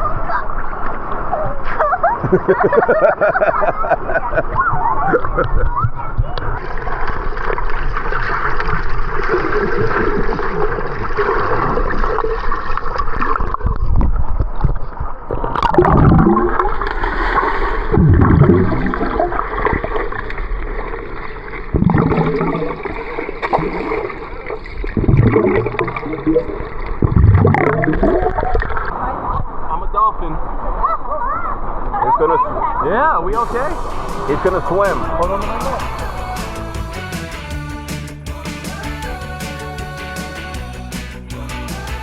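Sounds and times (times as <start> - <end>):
water gurgling and splashing: 0.0 - 29.7, 33.4 - 36.1.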